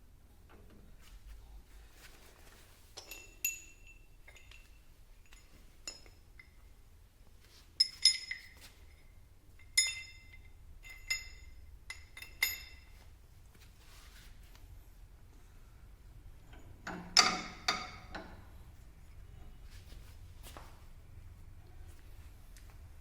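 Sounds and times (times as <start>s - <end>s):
metal tools clinking: 3.0s - 6.6s, 7.8s - 13.0s.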